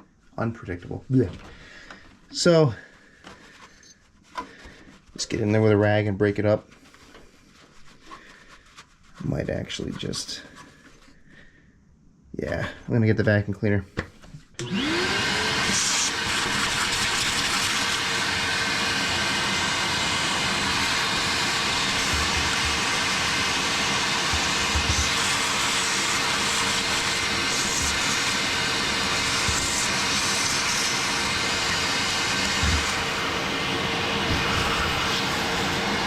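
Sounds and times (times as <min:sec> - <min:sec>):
vacuum cleaner whining: 0:14.6 - 0:36.0.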